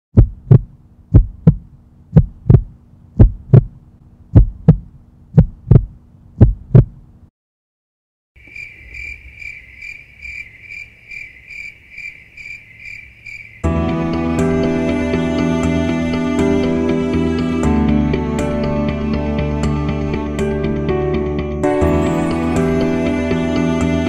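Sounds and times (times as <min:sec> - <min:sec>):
heartbeat thumps: 0:00.2 - 0:07.0
low hum: 0:00.2 - 0:07.3
crickets chirping: 0:08.4 - 0:13.6.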